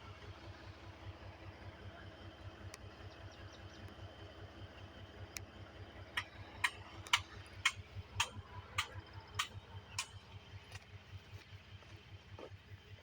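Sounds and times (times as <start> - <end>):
bulldozer diesel engine running: 0.0 - 13.0.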